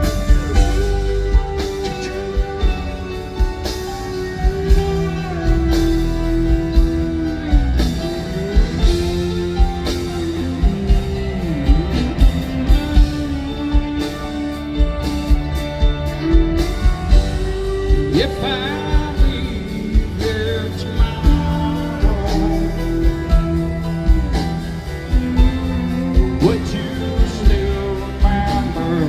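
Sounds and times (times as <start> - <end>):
bass guitar: 0.0 - 29.0
drum beats: 0.0 - 29.0
electric guitar sliding notes: 0.0 - 29.0.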